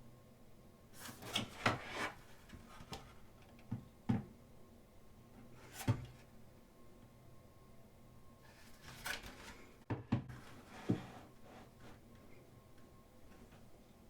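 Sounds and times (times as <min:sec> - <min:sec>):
thick book pages turning: 0:08.5 - 0:09.7.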